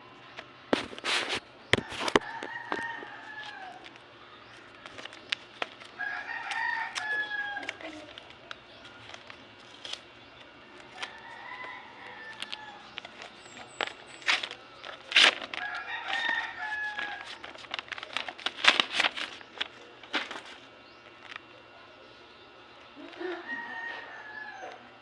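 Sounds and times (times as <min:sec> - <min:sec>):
rooster crowing: 0:01.8 - 0:04.0, 0:05.9 - 0:08.2, 0:10.9 - 0:13.3, 0:15.4 - 0:17.7, 0:23.0 - 0:25.0
sharp clicks and crackles: 0:04.7 - 0:11.4, 0:12.0 - 0:21.5.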